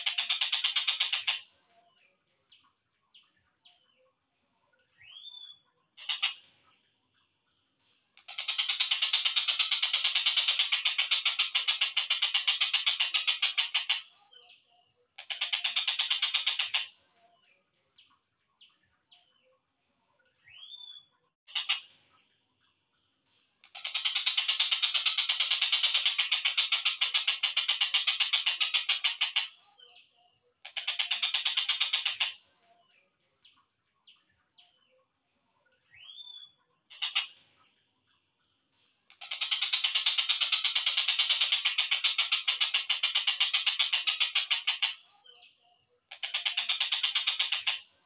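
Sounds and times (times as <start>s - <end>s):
bird chirps: 0.0s - 48.0s
kingfisher harsh rattling call: 8.3s - 14.1s, 39.2s - 45.0s.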